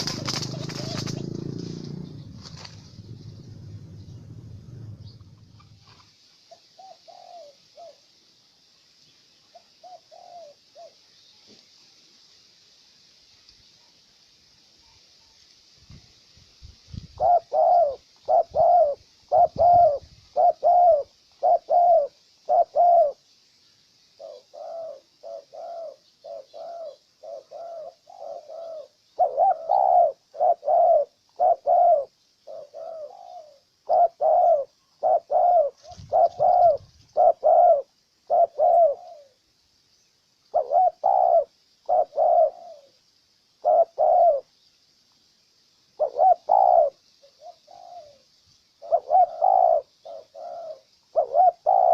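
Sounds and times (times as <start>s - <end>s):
dove cooing: 0.0s - 8.1s, 9.5s - 11.0s, 17.1s - 23.2s, 24.2s - 39.4s, 40.5s - 43.0s, 43.6s - 44.5s, 46.0s - 51.9s.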